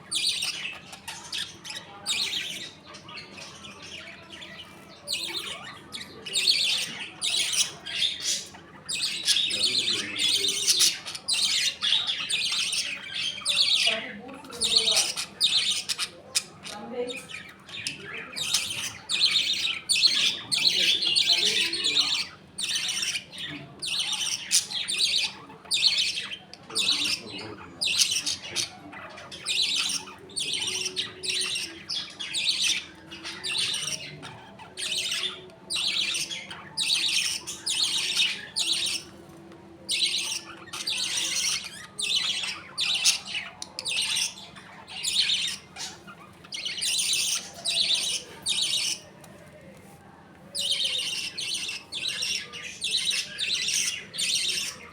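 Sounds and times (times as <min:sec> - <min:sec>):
budgerigars chattering and squawking: 0:00.0 - 0:49.2, 0:50.5 - 0:54.9.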